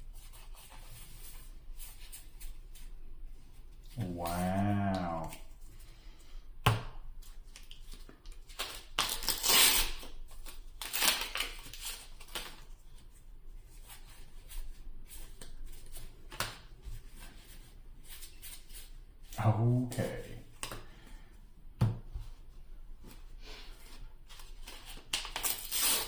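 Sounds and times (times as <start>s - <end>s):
foil pack crinkling: 7.6s - 12.7s, 24.6s - 26.0s.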